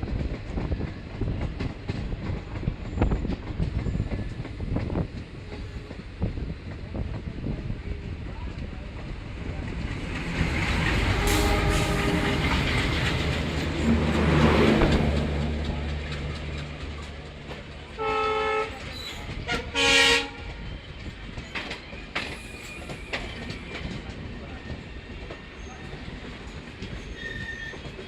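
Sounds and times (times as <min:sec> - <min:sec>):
train rumble and wheel clatter: 0:00.0 - 0:28.0
train horn blasts: 0:10.8 - 0:13.4, 0:17.9 - 0:20.7.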